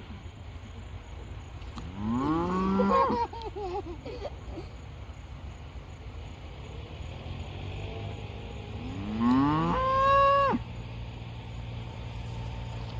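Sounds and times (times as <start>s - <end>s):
cow mooing: 1.9s - 3.0s, 8.8s - 10.6s.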